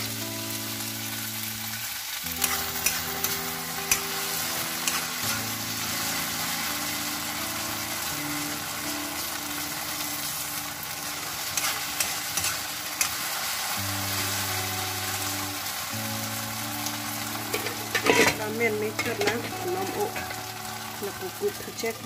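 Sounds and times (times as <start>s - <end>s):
fruit sizzling in hot oil: 0.0s - 22.0s
metal spoon clicking on pan: 2.4s - 4.2s, 4.8s - 5.1s, 11.6s - 13.2s.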